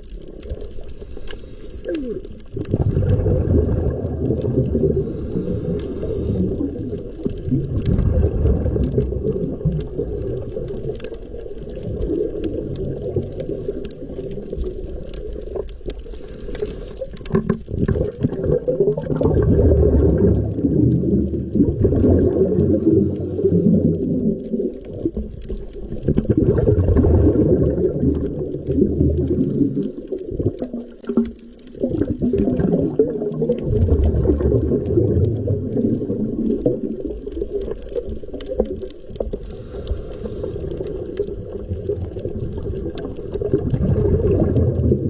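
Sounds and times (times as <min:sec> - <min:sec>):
sea surf rumbling and washing: 0:02.8 - 0:10.0.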